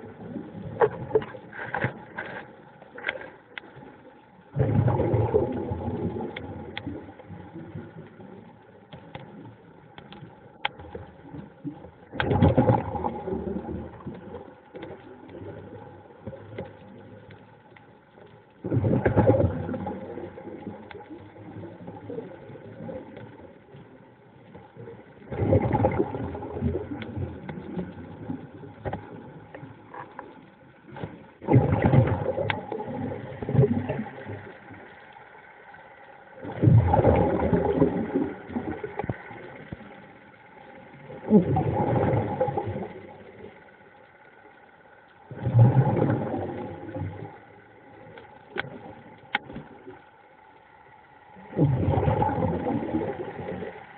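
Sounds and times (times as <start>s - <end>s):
exhaled breath bubbling underwater: 25.2s - 28.2s, 36.4s - 39.6s, 41.0s - 43.2s, 45.3s - 47.4s, 51.4s - 53.8s.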